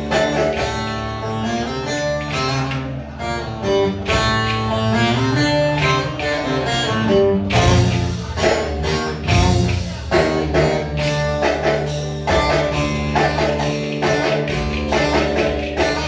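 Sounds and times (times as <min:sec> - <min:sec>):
drum and tambourine beat: 0:00.0 - 0:01.3, 0:07.5 - 0:16.0
plucked-string melody: 0:00.0 - 0:16.0.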